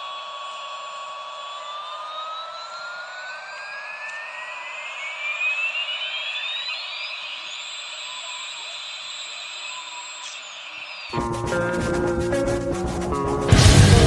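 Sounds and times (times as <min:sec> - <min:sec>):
toy helicopter whirring whine: 0:00.0 - 0:11.2.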